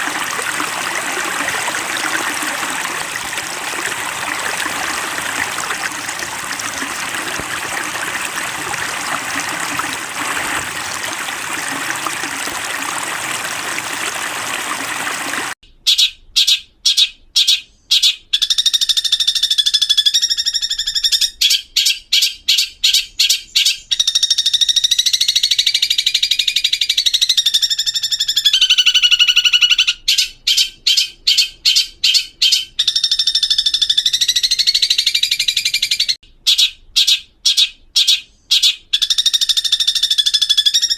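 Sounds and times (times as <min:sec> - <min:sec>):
running water rushing: 0:00.0 - 0:15.6.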